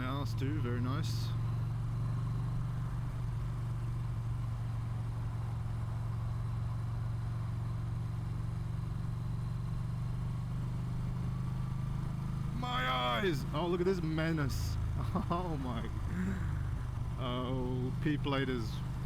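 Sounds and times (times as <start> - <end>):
motorcycle engine drone: 0.0 - 19.0
wind and road noise: 0.0 - 19.0.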